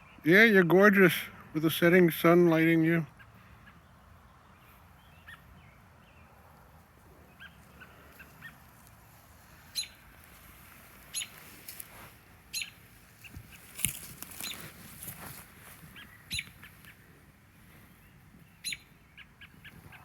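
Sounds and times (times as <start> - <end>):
birds chirping faintly: 3.0 - 20.0
sharp high-pitched bird calls: 5.0 - 5.6, 9.6 - 10.1, 11.1 - 11.6, 12.5 - 14.8, 15.8 - 17.0, 18.5 - 20.0.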